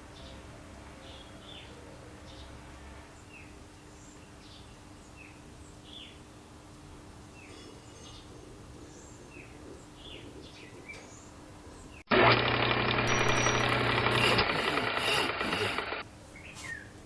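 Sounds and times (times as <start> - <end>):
birds chirping: 7.3 - 12.1.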